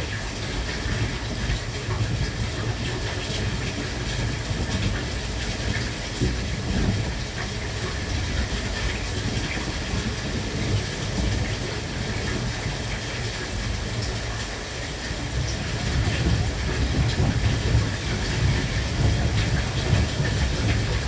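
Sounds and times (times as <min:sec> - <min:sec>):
electric train rumbling: 0:00.0 - 0:21.0.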